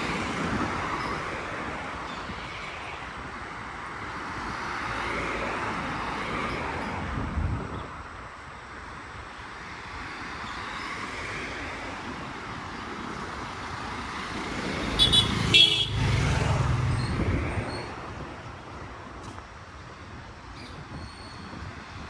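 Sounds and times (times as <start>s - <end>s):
road traffic: 0.0s - 22.0s
vehicle passing with low rumble: 14.1s - 18.0s
vehicle horn beeps: 15.0s - 16.1s.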